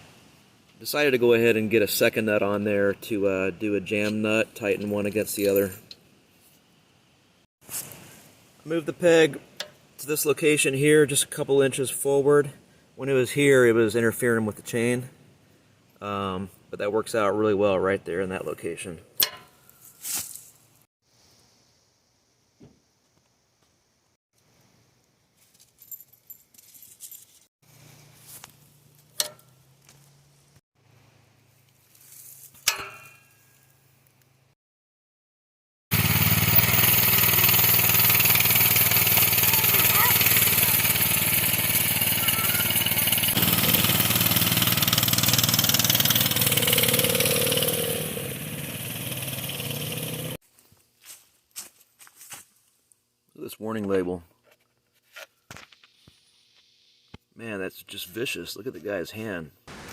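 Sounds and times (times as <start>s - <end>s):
hand tools and bolts clinking: 4.0s - 6.0s, 19.2s - 20.2s, 25.4s - 27.5s, 28.4s - 29.6s
minibike engine running: 36.0s - 50.4s.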